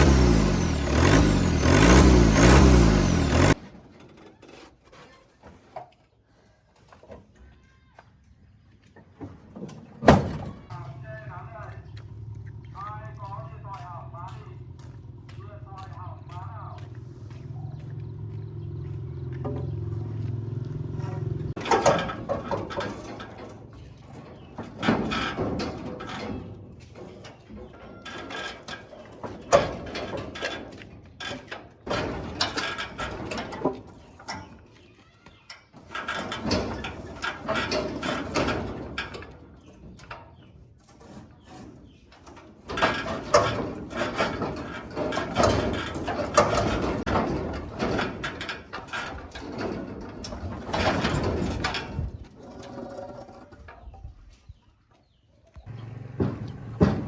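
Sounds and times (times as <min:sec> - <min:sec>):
knocking and clattering: 0:20.8 - 0:34.7, 0:35.7 - 0:54.1.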